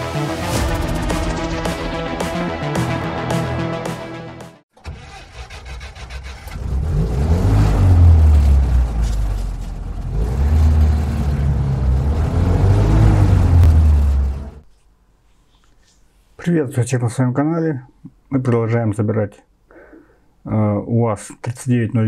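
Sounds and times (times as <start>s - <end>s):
vehicle engine revving: 5.0s - 14.6s.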